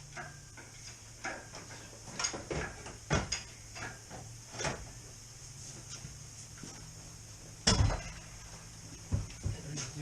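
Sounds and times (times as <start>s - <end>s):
faint steady hum: 0.0s - 10.0s
loud metallic clunk: 7.6s - 8.2s.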